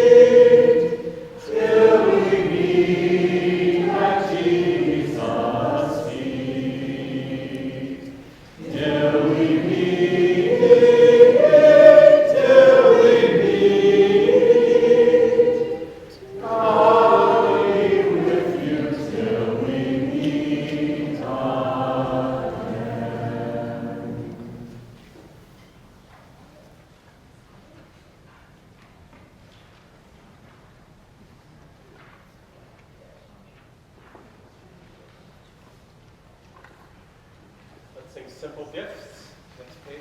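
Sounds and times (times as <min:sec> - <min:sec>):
vocal group singing: 0:00.0 - 0:25.2.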